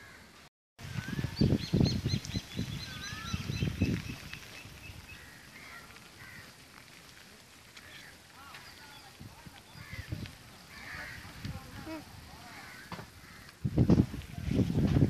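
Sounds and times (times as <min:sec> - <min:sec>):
small birds chirping: 0:00.8 - 0:06.6, 0:07.7 - 0:13.7
swooping bird calls: 0:00.9 - 0:06.6
rumbling bumps on microphone: 0:12.9 - 0:15.0.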